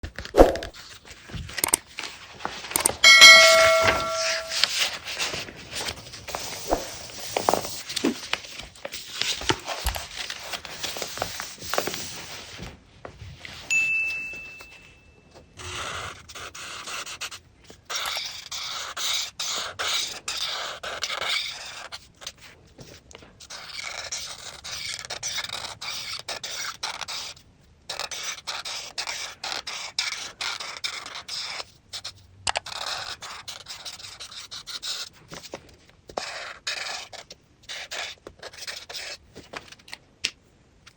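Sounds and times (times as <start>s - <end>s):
coloring tool scratching paper: 15.6s - 22.6s, 23.4s - 35.3s, 36.1s - 39.2s.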